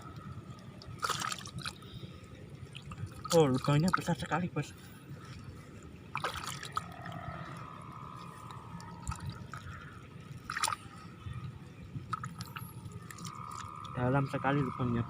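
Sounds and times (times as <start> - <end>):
water sloshing and dripping: 0.0 - 14.0
water splashes: 0.0 - 14.8
wet mud squelching: 0.8 - 2.0, 2.7 - 4.4, 5.2 - 11.0, 12.1 - 14.0.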